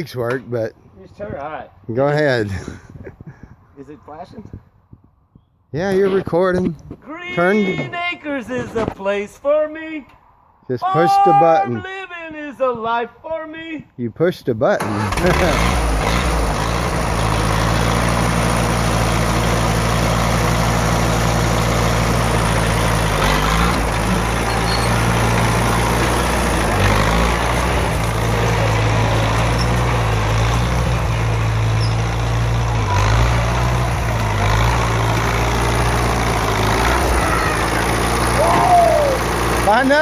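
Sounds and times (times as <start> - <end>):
tractor engine running: 14.8 - 40.0.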